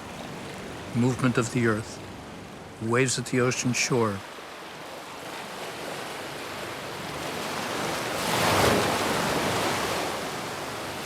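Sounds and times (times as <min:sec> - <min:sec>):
ocean wave breaking: 0:07.0 - 0:11.0.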